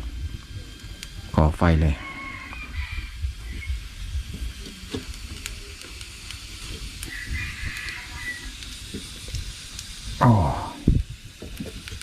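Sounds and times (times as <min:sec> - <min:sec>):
fire crackles and pops: 0:00.0 - 0:12.0
wood fire hissing: 0:00.0 - 0:12.0.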